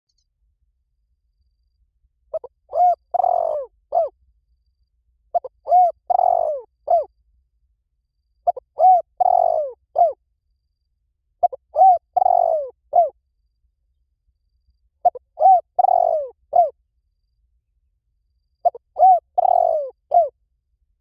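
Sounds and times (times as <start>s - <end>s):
dove cooing: 2.3s - 4.2s, 5.3s - 7.1s, 8.4s - 10.2s, 11.4s - 13.2s, 15.0s - 16.8s, 18.6s - 20.3s.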